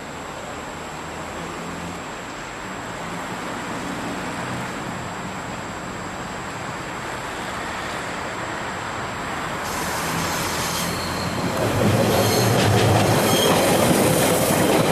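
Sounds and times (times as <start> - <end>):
low rumble of train: 0.0 - 14.9
train wheels rattling over track: 9.6 - 14.9
wheel squeals: 9.7 - 14.6.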